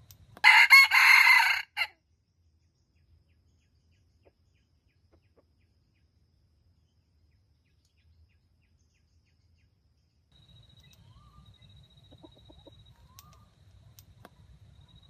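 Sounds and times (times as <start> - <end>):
soft repeated chirps: 2.4 - 15.0
chicken clucks: 5.1 - 5.6, 12.0 - 13.4
faint bird calls: 10.4 - 15.0.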